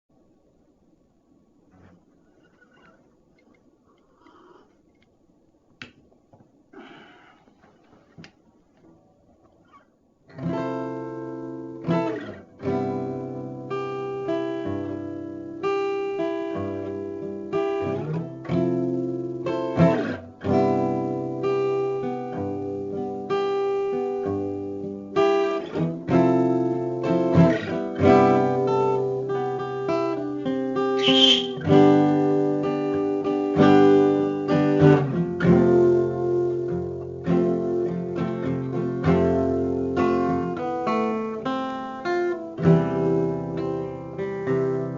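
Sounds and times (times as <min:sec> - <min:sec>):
acoustic guitar strumming chords: 0:10.3 - 0:44.9.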